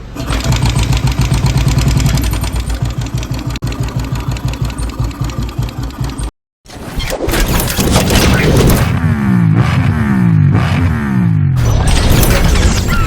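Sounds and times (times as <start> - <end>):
motorcycle engine idling: 0.2 - 6.3.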